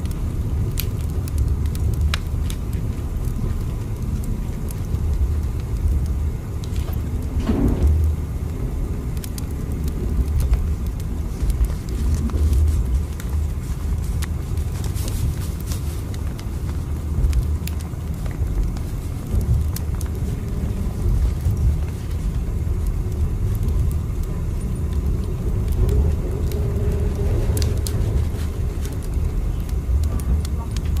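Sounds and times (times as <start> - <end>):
moving train rumble: 0.0 - 31.0.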